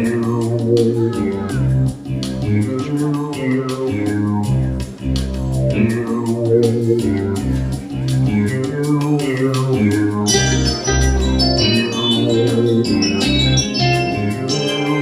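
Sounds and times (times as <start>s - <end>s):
bass notes: 0.0s - 15.0s
instrumental jazz: 0.0s - 15.0s
sharp rhythmic strikes: 0.0s - 15.0s.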